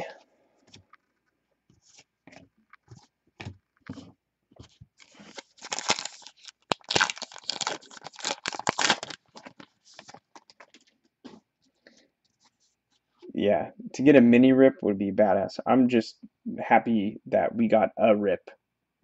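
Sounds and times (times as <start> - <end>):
wrapper crinkling and tearing: 5.0 - 10.9.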